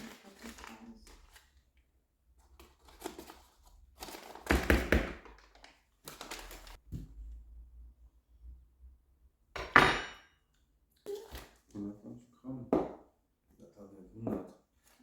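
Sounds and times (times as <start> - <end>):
kitchen items tapping and knocking: 4.4 - 5.5, 9.6 - 10.4, 12.7 - 13.1, 14.1 - 14.7.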